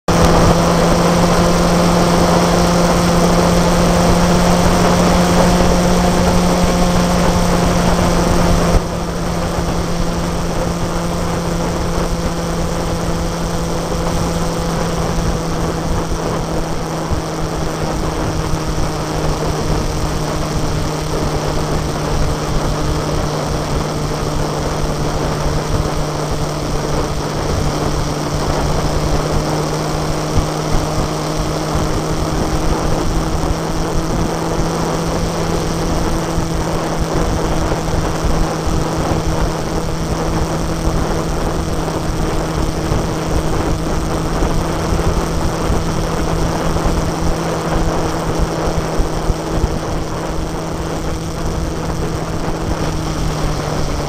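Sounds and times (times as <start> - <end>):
motorcycle engine running: 0.0 - 54.0
wind noise: 0.1 - 54.0.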